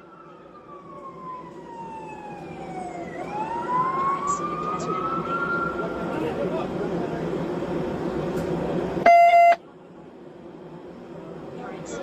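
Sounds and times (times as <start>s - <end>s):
emergency siren wailing: 0.0s - 6.4s
traffic and engine noise: 0.0s - 12.0s.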